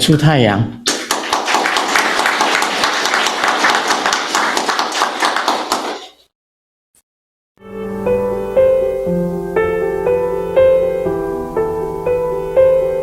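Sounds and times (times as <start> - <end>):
audience applauding: 0.8 - 6.2.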